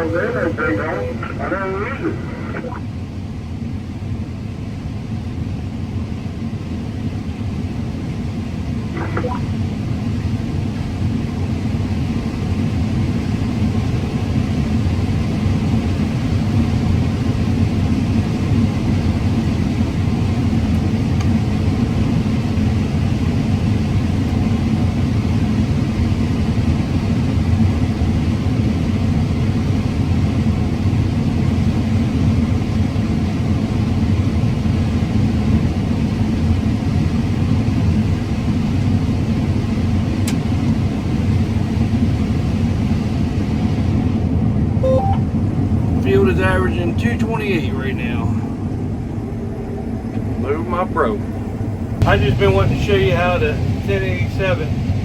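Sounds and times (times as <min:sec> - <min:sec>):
combine harvester rumbling: 0:00.0 - 0:02.8, 0:08.8 - 0:09.6.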